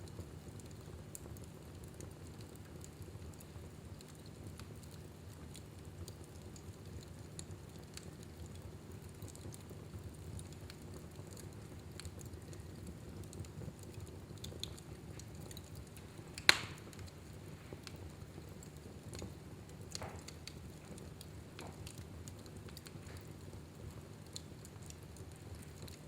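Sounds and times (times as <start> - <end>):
fire burning and crackling: 0.0 - 26.0
sharp loud pop of fire: 16.5 - 16.8.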